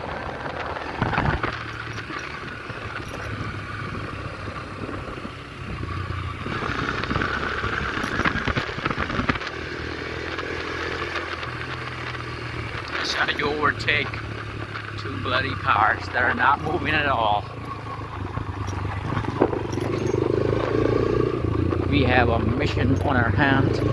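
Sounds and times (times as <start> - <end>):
motorcycle engine running: 0.0 - 23.9.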